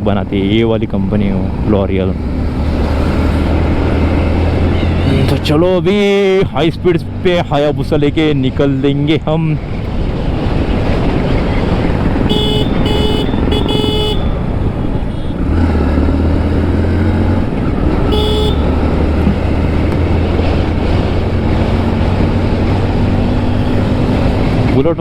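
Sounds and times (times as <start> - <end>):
wind and road noise: 0.0 - 25.0
vehicle horn honking: 12.2 - 15.5, 18.0 - 18.8.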